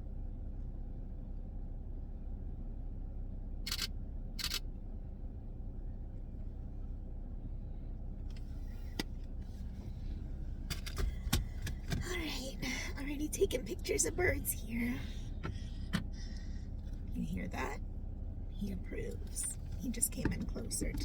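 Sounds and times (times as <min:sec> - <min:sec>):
car rumble from inside cabin: 0:00.0 - 0:21.0
faint handling knocks: 0:19.5 - 0:21.0.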